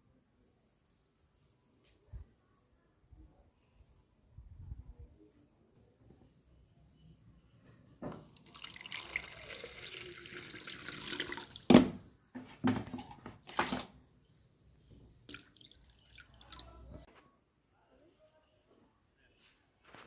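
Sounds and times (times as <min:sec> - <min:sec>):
liquid pouring into plastic bottle: 0:08.2 - 0:11.8.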